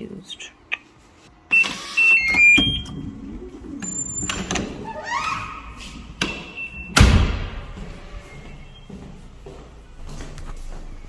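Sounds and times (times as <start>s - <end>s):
short electronic beeps: 1.5s - 3.0s, 6.2s - 7.0s
door shutting with a thud: 6.2s - 7.8s.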